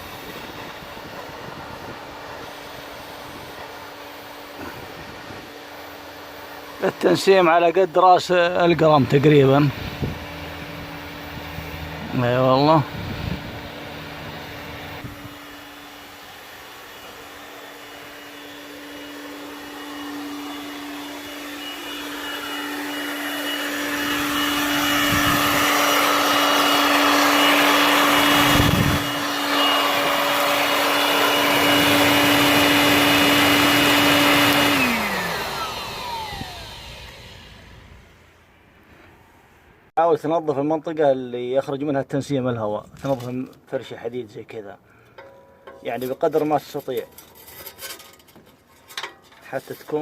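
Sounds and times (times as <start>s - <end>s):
small electric motor running: 0.0s - 7.7s, 8.5s - 38.2s.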